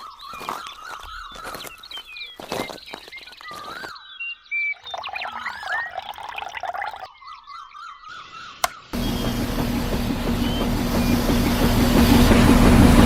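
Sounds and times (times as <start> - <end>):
chirps and gliding whistles: 0.0 - 9.5.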